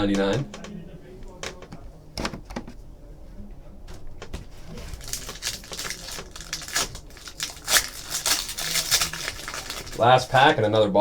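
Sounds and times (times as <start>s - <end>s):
packaging crinkling and rustling: 4.0s - 10.6s.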